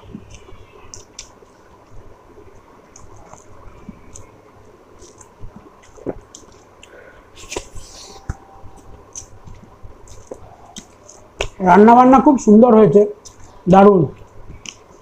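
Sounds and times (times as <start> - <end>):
wet squishy chewing: 0.0 - 1.6, 2.3 - 11.6.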